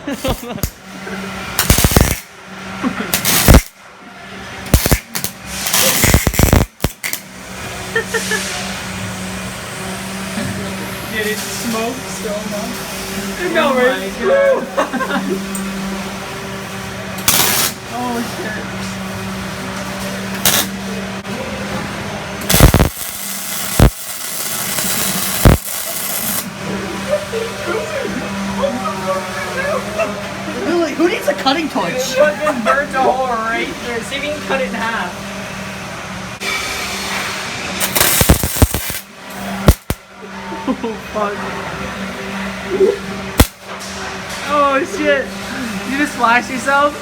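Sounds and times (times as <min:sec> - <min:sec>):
arc welder crackling: 0:00.0 - 0:03.9, 0:04.6 - 0:08.3, 0:16.9 - 0:18.4, 0:19.0 - 0:21.2, 0:22.3 - 0:27.7, 0:37.7 - 0:40.2, 0:43.3 - 0:44.3
steady low hum: 0:14.8 - 0:31.0.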